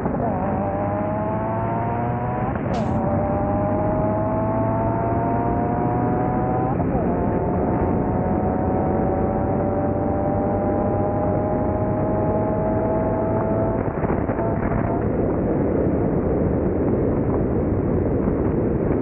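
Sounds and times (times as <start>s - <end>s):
car engine accelerating hard: 0.0s - 16.4s.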